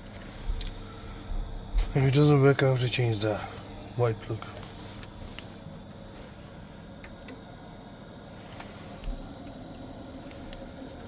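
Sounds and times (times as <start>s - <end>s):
boiler humming: 0.0s - 11.0s
high-pitched whine: 8.4s - 11.0s.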